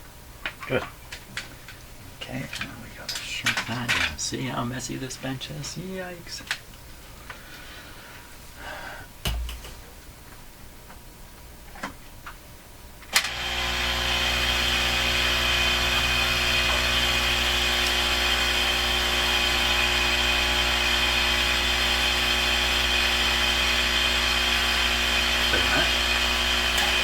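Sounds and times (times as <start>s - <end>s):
heat gun fan whine: 13.0s - 27.0s.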